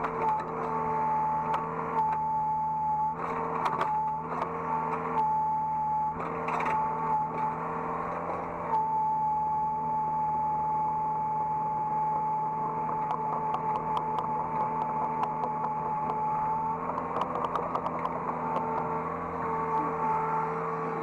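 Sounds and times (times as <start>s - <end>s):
excavator engine hum: 0.0s - 21.0s
steady high whine: 8.6s - 21.0s.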